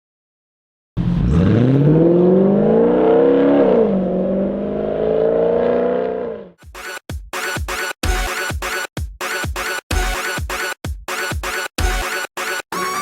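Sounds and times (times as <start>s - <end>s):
car engine revving: 1.0s - 6.6s.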